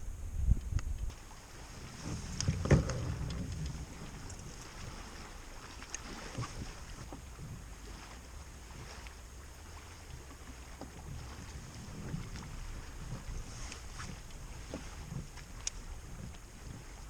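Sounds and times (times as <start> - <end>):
wind buffeting microphone: 0.0 - 17.0
water against a kayak: 0.1 - 17.0
light knocks and ticks: 2.0 - 5.0.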